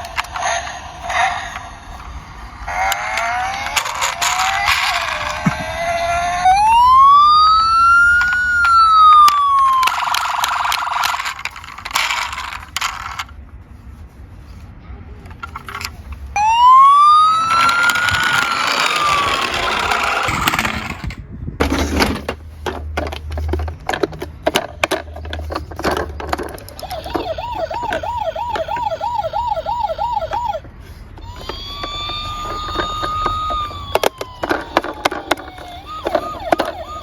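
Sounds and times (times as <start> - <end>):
police siren wailing: 0.0 - 12.6, 16.4 - 20.9, 26.7 - 37.0
toy cars rattling down a slope: 0.0 - 13.4, 15.3 - 37.0.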